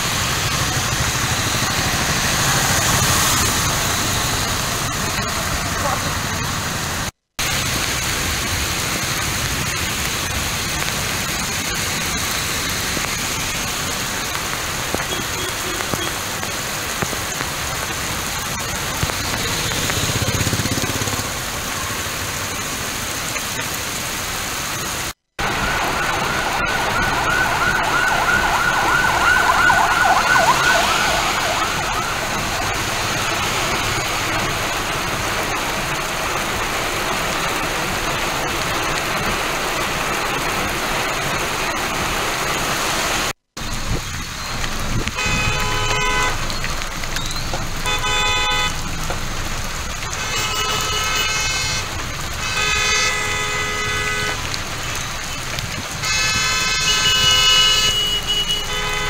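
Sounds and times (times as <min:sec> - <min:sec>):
heavy rain on road: 0:00.0 - 0:59.0
warbling siren: 0:25.4 - 0:32.9.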